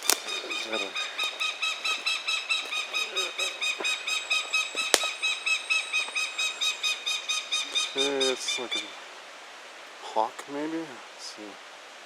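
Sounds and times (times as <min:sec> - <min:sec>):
hawk squealing calls: 0:00.0 - 0:09.0.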